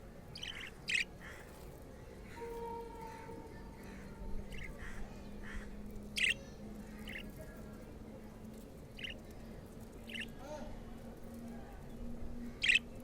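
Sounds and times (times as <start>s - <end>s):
budgerigars chirping: 0.4s - 1.1s, 6.2s - 6.4s, 7.0s - 7.2s, 9.0s - 9.2s, 10.1s - 10.3s, 12.6s - 12.9s.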